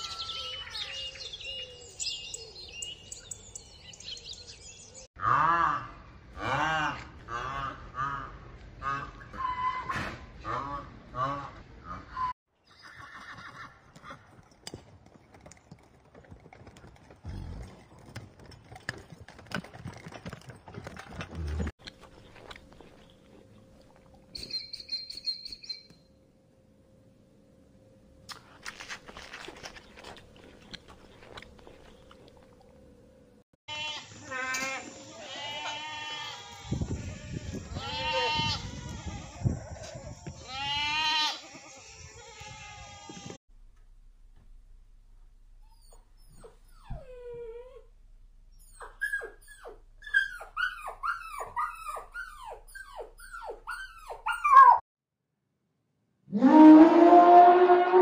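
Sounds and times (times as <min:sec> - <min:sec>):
goat bleating: 0:33.7 - 0:39.4, 0:40.4 - 0:43.2.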